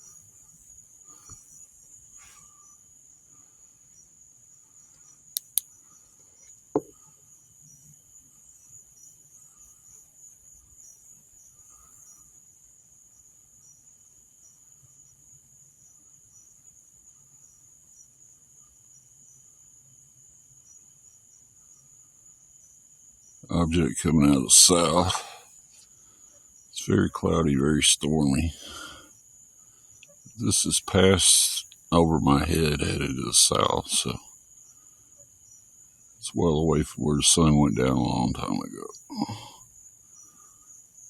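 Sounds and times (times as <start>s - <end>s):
night insects trilling: 0.0s - 41.0s
sharp clicks: 5.4s - 5.7s.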